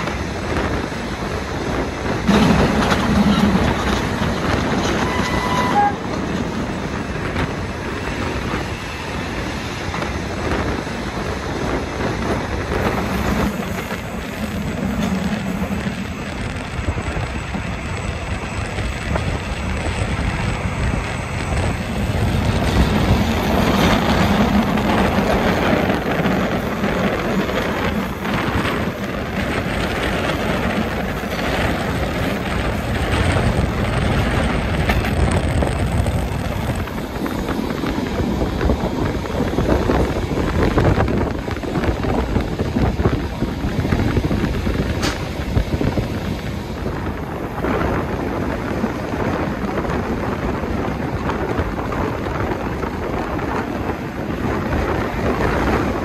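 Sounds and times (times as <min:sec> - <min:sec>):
rushing air: 0:00.0 - 0:56.0
train wheels rumbling on rail: 0:00.0 - 0:56.0
sharp knocks from track: 0:45.0 - 0:45.4.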